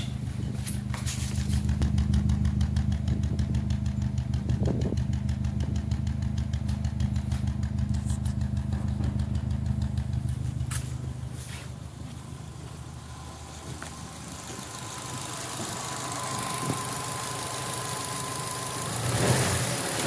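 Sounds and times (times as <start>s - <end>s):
misfiring car engine idling: 0.0s - 20.0s.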